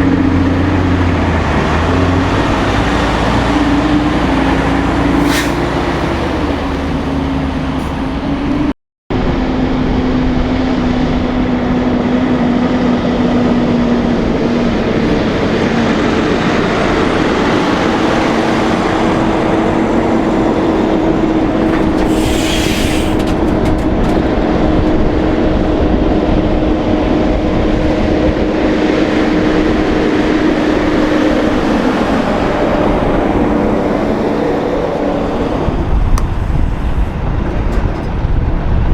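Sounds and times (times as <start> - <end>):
diesel trucks passing: 0.0 - 38.9
road noise: 0.0 - 38.9
short hiss: 5.2 - 6.9, 22.0 - 23.2.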